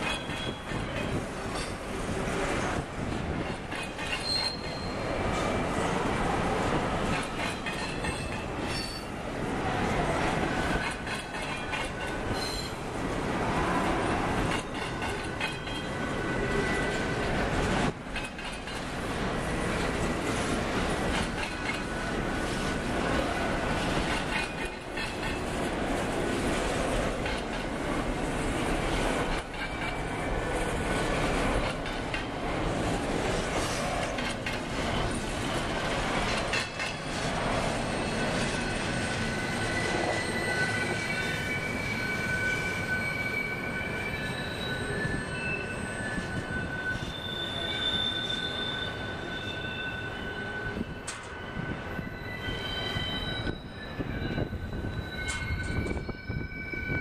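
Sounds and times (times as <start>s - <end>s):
train wheels squealing: 0.0s - 1.8s, 2.5s - 5.9s, 7.1s - 9.2s, 9.9s - 12.8s, 13.6s - 18.8s, 21.1s - 25.6s, 29.0s - 32.2s, 33.4s - 57.0s
freight train rumbling and clattering: 0.0s - 41.8s, 50.5s - 57.0s.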